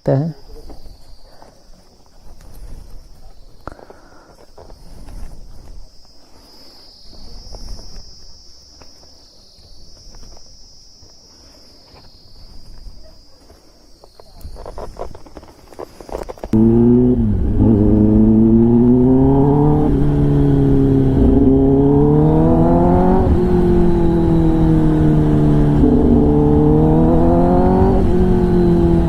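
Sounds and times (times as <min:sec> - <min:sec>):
low rumbling: 0:16.5 - 0:29.0.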